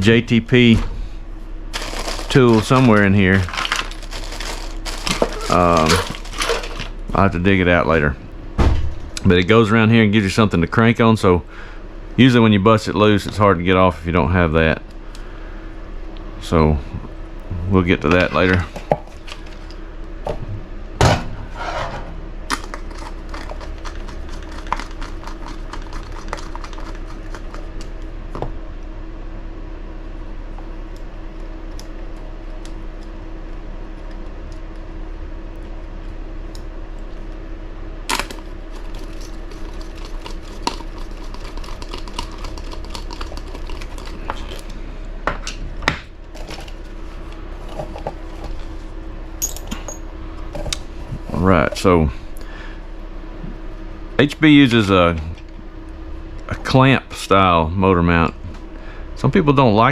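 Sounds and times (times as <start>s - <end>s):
steady low hum: 0.0s - 59.9s
small hardware and tools clinking: 49.4s - 50.1s.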